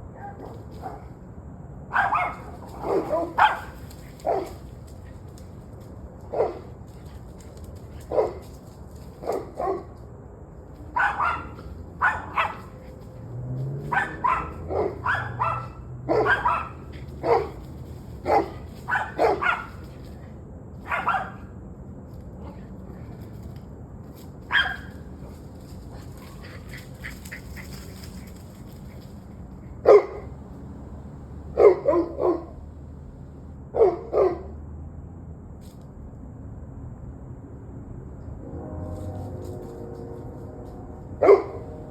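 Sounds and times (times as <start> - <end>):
dog barking: 0.1 - 1.1, 1.9 - 4.7, 6.3 - 6.8, 8.0 - 8.4, 9.2 - 10.0, 10.9 - 12.9, 13.8 - 20.0, 20.8 - 21.5, 24.5 - 25.1, 29.8 - 30.4, 31.5 - 32.6, 33.7 - 34.6, 41.2 - 41.9.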